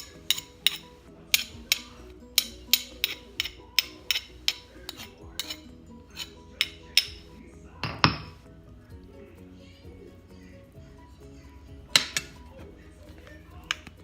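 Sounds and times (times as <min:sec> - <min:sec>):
utensils clinking against dishes: 0:00.0 - 0:08.4
soft background music: 0:00.0 - 0:14.0.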